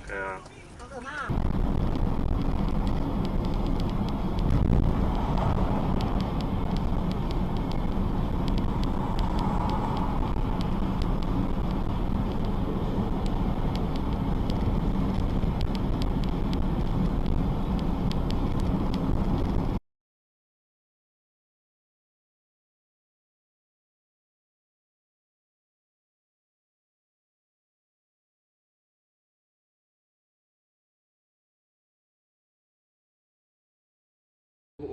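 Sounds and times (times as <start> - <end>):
small crackling clicks: 0.0 - 19.6
car driving rumble: 0.0 - 19.8
road and wind noise: 0.0 - 19.8.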